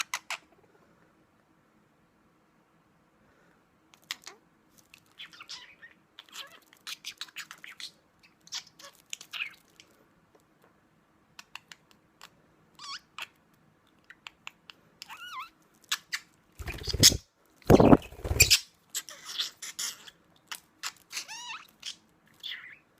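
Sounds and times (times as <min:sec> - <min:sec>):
budgie chirps: 0:16.0 - 0:18.6.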